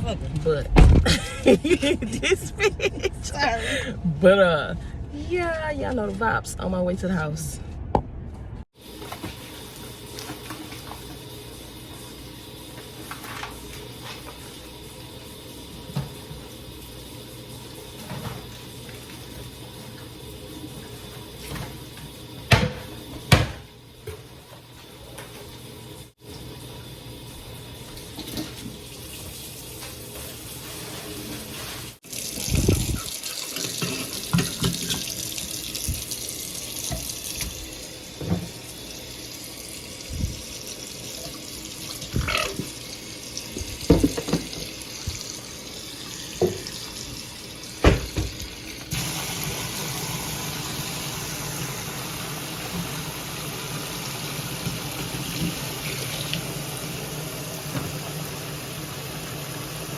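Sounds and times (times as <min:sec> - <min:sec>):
tap water running into sink: 0:08.9 - 0:24.3, 0:32.0 - 0:59.9
items knocking and clattering: 0:43.8 - 0:45.2.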